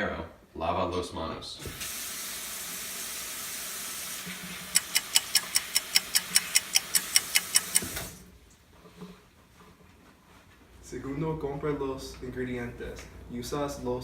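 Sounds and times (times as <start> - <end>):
rapid sharp clicks: 4.7 - 7.9.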